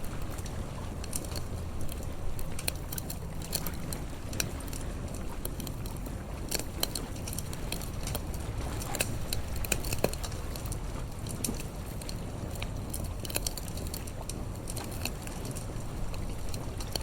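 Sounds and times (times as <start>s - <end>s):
sea wash rumble: 0.0s - 17.0s
wood fire crackling: 0.0s - 17.0s.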